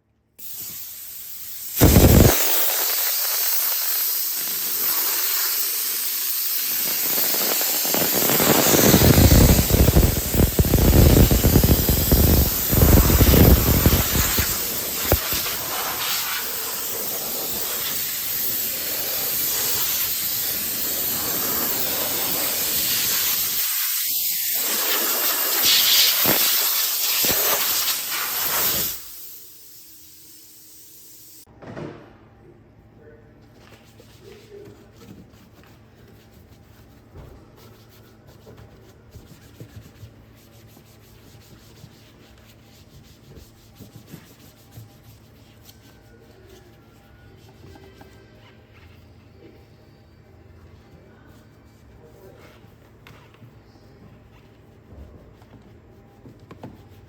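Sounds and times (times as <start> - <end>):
high-pressure spray hissing: 0.4 - 31.5.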